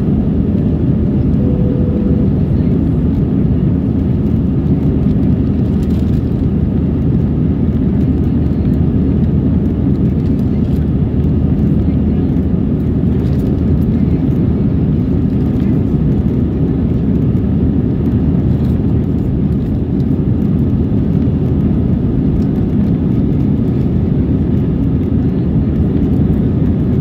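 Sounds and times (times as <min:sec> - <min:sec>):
jet cabin engine and airflow noise: 0:00.0 - 0:27.0.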